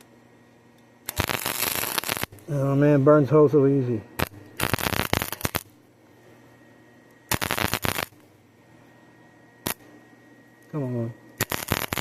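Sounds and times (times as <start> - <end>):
welding arc crackling: 1.0 - 5.7, 7.3 - 8.3, 9.6 - 9.8, 11.4 - 12.0.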